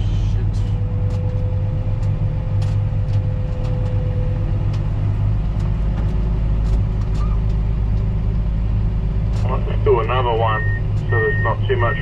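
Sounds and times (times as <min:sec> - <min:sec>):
tractor engine rumbling: 0:00.0 - 0:12.0.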